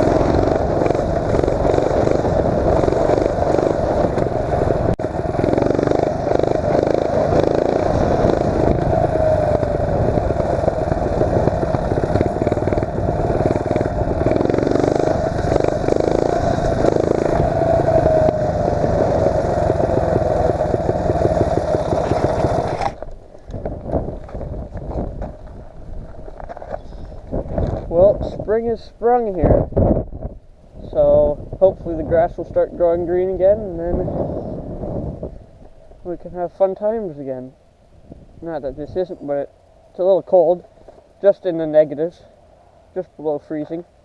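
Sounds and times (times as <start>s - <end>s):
mini bike engine revving: 0.0s - 24.9s.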